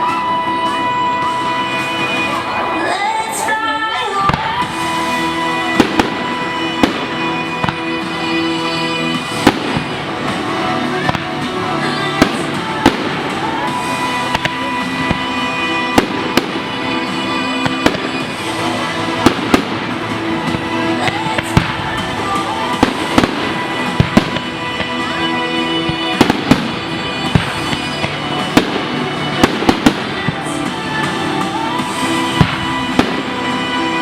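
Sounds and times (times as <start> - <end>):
music playing: 0.0 - 34.0
fireworks bangs and crackles: 3.8 - 34.0.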